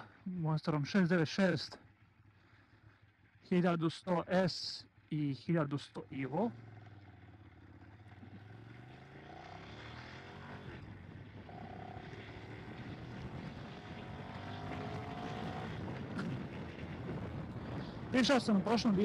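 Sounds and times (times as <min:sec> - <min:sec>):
motorcycle engine idling and pulling away: 0:06.0 - 0:19.0.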